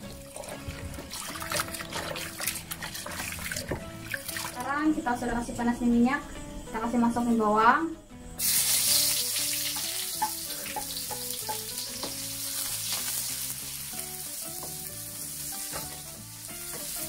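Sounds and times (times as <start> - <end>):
wooden spatula stirring in wok: 0.3 - 3.8
vegetables sizzling in hot oil: 8.4 - 17.0.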